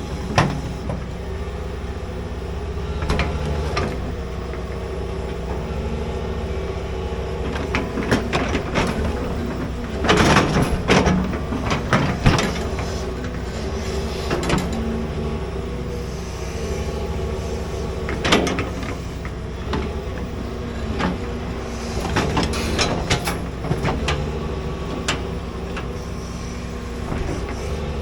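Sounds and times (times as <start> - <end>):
excavator engine running: 0.0 - 28.0
metal clanks and scrapes: 7.5 - 14.8, 20.9 - 24.2.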